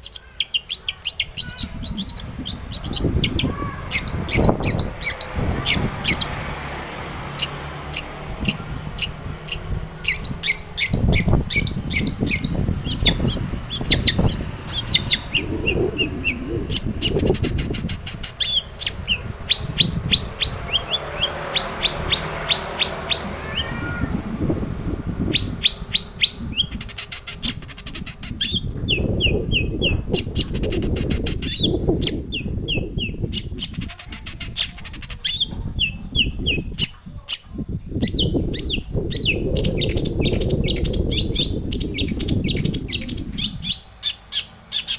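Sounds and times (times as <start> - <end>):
shrike singing sharp repeated notes: 0.0 - 35.4
low rumbling background noise: 0.0 - 44.9.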